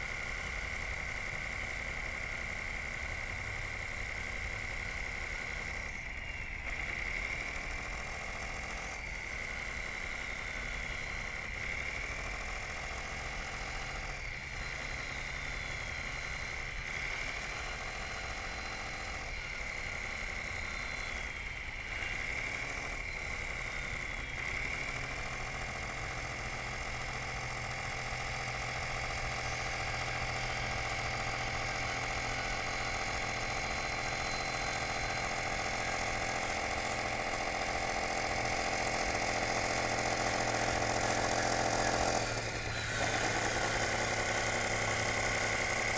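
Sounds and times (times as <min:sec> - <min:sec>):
model bulldozer motor whine: 0:00.0 - 0:45.9.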